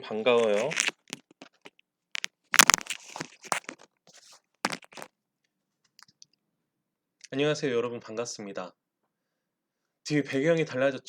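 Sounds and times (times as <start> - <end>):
rustling and scraping handling noise: 0.2 - 5.1.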